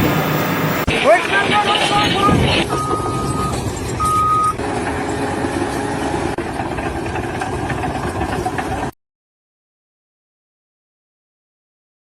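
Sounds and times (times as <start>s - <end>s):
heavy vehicle engine running: 0.0s - 9.0s
reversing alarm beeps: 2.2s - 4.6s.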